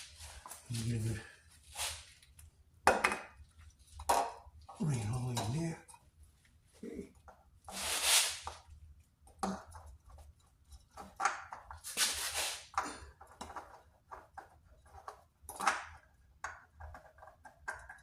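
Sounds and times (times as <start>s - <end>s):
scraping and rustling handling noises: 0.0s - 2.5s.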